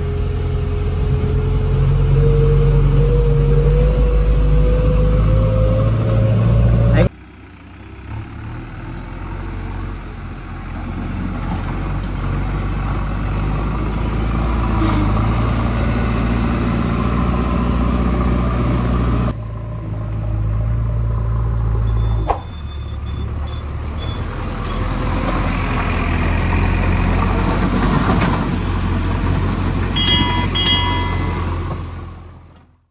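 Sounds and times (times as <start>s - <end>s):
diesel engine running: 0.0s - 14.3s, 15.1s - 32.4s
short high beeps: 30.0s - 31.6s.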